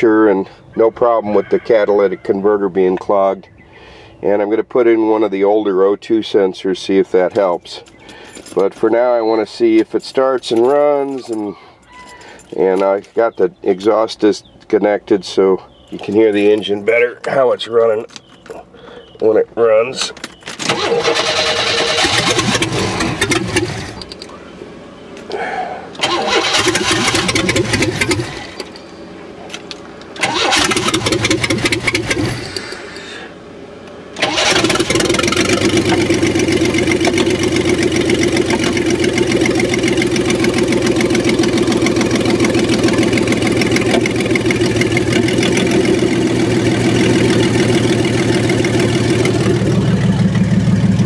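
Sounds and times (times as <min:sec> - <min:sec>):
engine starter cranking: 0:20.4 - 0:24.2, 0:26.0 - 0:28.8, 0:30.2 - 0:33.1, 0:34.2 - 0:50.4
unmuffled engine running: 0:21.7 - 0:24.4, 0:26.5 - 0:33.2, 0:34.2 - 0:51.0.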